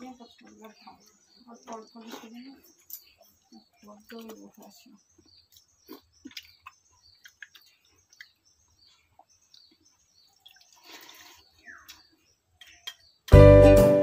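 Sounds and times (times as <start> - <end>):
small chirps: 0.0 - 13.3
mouth smacks: 5.5 - 8.4, 9.2 - 13.0.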